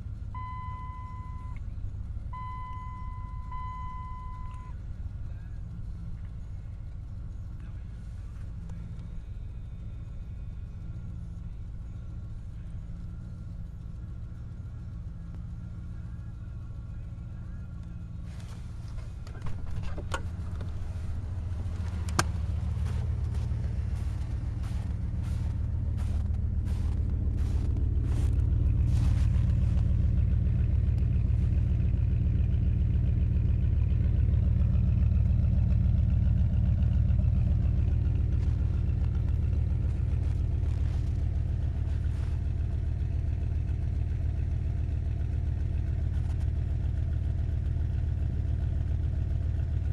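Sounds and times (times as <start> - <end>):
pickup engine idling: 0.0 - 49.9
engine clicks and knocks: 14.9 - 49.9.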